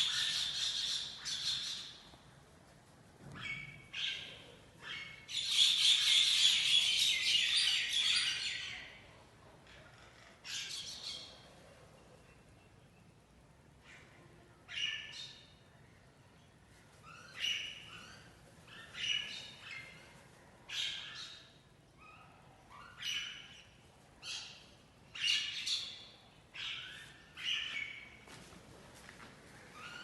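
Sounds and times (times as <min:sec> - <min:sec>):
faint background hum: 0:00.0 - 0:30.0.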